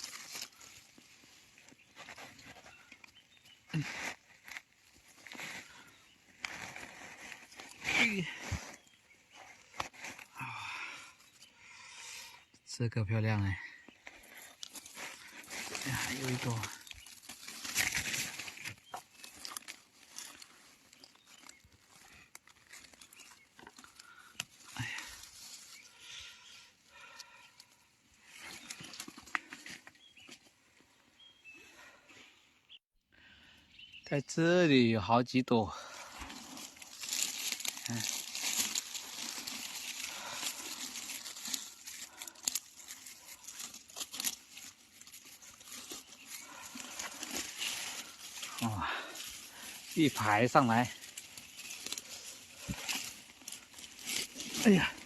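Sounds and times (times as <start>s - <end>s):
dry leaves and twigs rustling: 0.0s - 12.6s, 13.2s - 32.0s, 35.8s - 55.0s.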